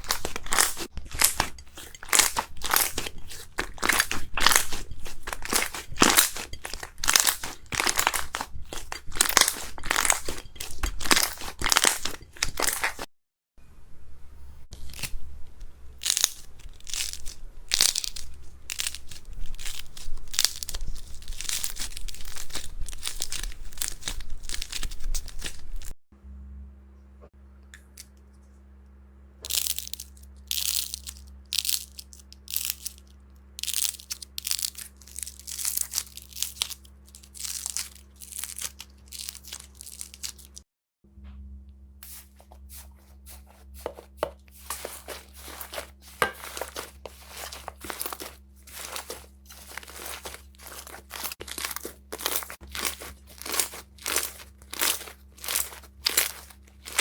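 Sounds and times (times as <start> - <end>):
slime squeezed crackling: 0.0 - 13.1, 16.0 - 25.9, 33.6 - 40.6, 42.0 - 57.0
faint steady hum: 13.6 - 57.0.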